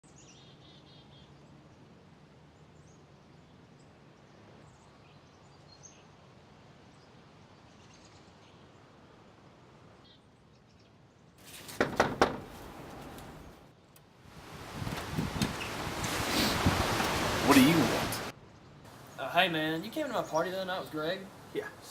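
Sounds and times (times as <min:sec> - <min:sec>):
rustling noise: 0:11.4 - 0:13.7, 0:14.4 - 0:17.4
sharp thumps: 0:11.6 - 0:13.6.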